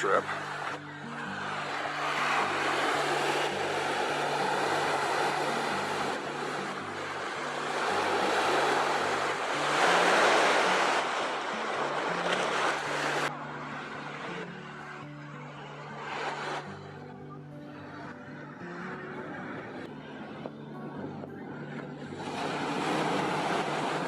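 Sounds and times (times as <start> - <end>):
ocean surf breaking: 0.0 - 15.0, 15.8 - 17.1, 21.4 - 24.0
faint background music: 0.0 - 24.0.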